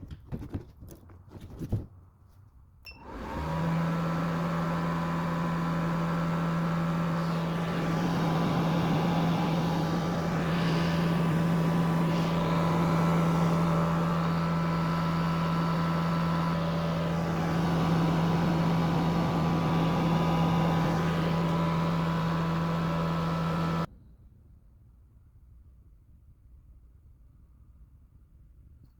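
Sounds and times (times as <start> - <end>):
fan rushing: 2.9 - 23.9
welding machine electrical hum: 3.0 - 23.9.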